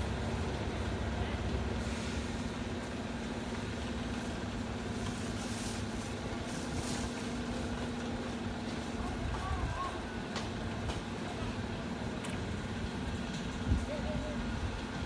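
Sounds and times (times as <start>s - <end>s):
diesel locomotive rumbling: 0.0s - 15.0s.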